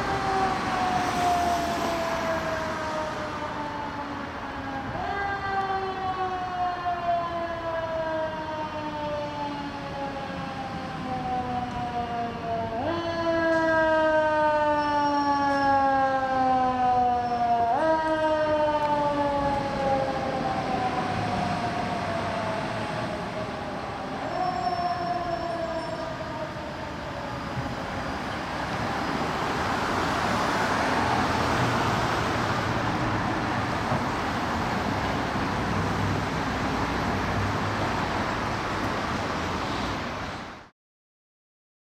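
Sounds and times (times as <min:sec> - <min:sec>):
fire engine siren: 0:00.0 - 0:40.7
rushing traffic noise: 0:00.0 - 0:40.7.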